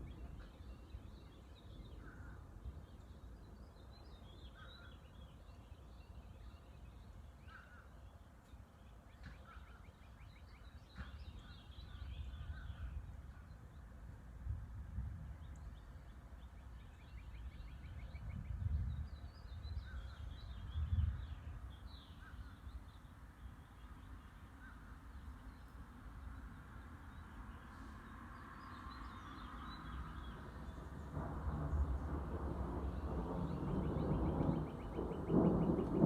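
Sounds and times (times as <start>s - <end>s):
low uneven rumble: 27.4s - 36.0s.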